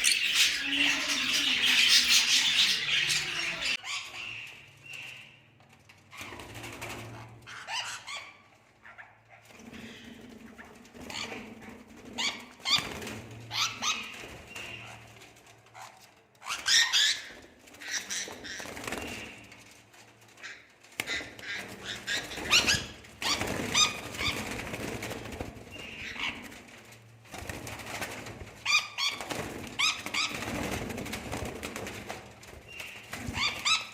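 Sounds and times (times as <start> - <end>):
birds chirping: 0.0 - 3.8.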